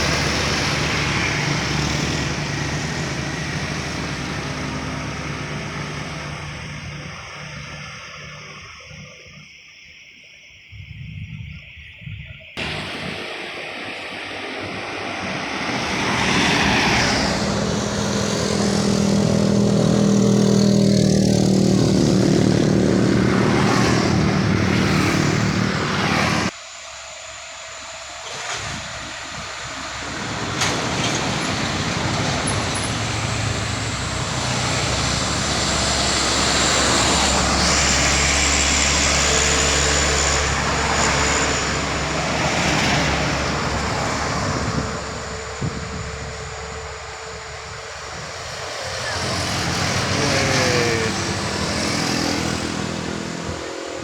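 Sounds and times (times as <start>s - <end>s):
truck deep low rumble: 0.0s - 9.6s
loaded trucks labouring uphill: 0.0s - 10.1s, 12.6s - 54.0s.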